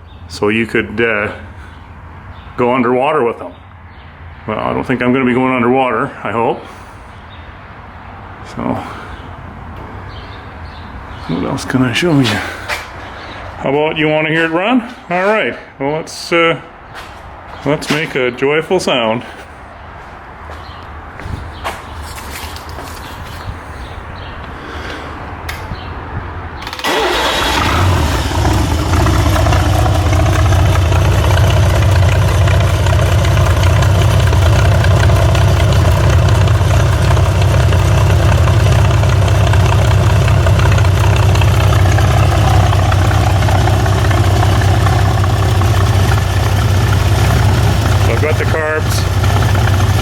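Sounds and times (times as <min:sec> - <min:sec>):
engine starting and idling: 0:26.6 - 0:50.0.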